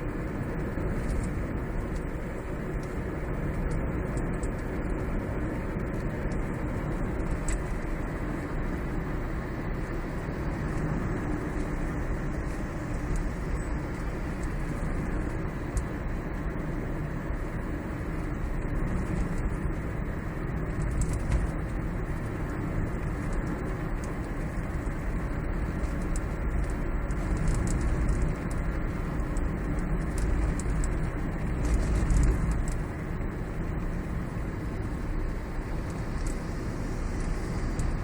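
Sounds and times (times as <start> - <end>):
road and tyre rumble in car: 0.0 - 38.0
faint dashboard rattles: 18.5 - 35.2.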